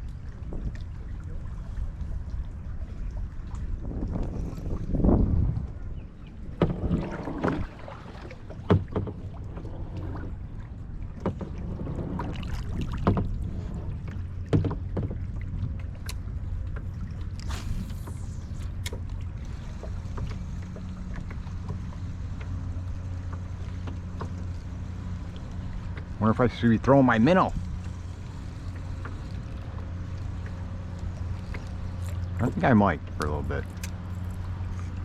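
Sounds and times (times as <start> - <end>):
wind on microphone: 0.0 - 8.4, 15.2 - 20.2
water sloshing against hull: 0.0 - 35.0
knocks on kayak hull: 8.6 - 9.3
falling high whizz: 17.4 - 18.7.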